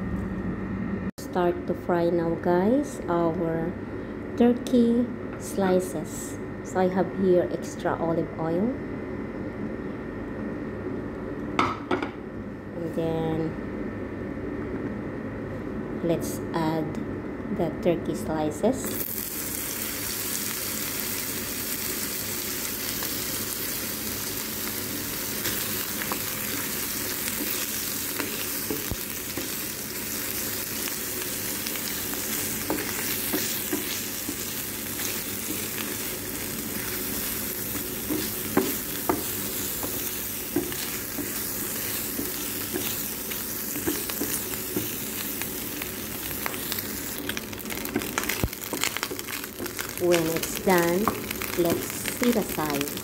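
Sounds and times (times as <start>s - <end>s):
meat sizzling in a frying pan: 18.8s - 53.0s
wooden spatula tapping and scraping: 32.6s - 34.5s, 37.7s - 43.0s, 47.9s - 51.3s.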